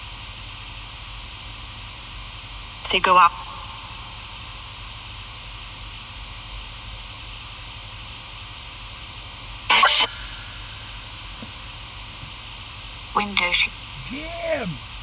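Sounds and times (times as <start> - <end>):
static hiss: 13.2 - 15.0
voice-like cry: 13.3 - 14.8.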